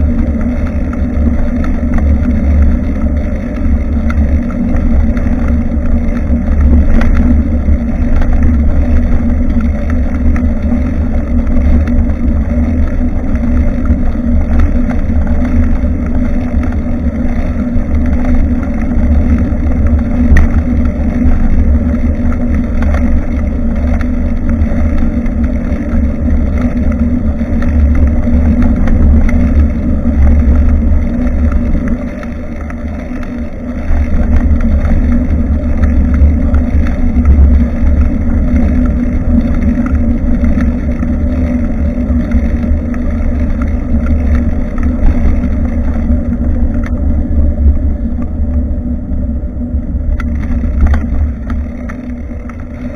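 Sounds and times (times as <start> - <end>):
moving bicycle noise: 0.0 - 52.9
wind buffeting microphone: 0.0 - 52.9.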